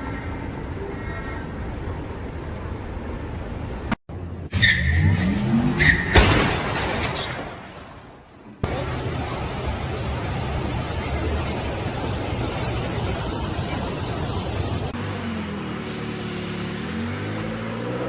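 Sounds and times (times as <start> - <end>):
car road and engine noise: 0.0 - 18.0
engine revving: 14.8 - 18.0.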